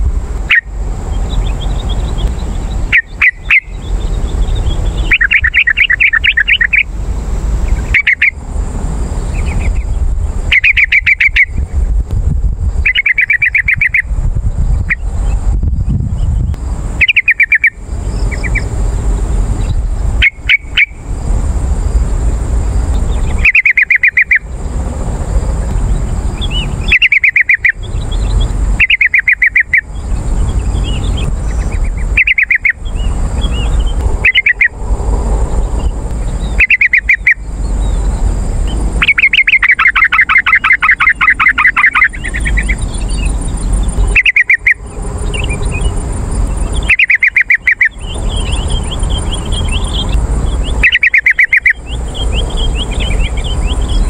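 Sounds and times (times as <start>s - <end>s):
bird calling with bubbling notes: 0.4s - 6.9s, 7.7s - 8.4s, 9.3s - 11.6s, 12.8s - 14.1s, 17.0s - 18.7s, 20.2s - 21.0s, 23.0s - 24.5s, 26.4s - 34.8s, 35.8s - 54.0s.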